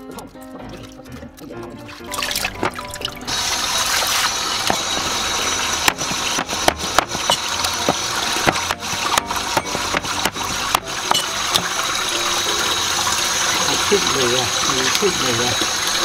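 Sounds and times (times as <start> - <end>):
tap water running into a basin: 0.0 - 16.0
cleaver striking wooden board: 5.8 - 11.7.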